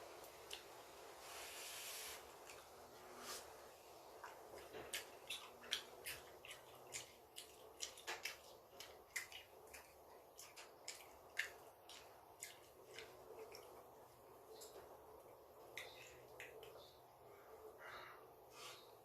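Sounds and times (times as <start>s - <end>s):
chewing and mouth smacks: 0.4s - 0.7s, 4.2s - 17.0s.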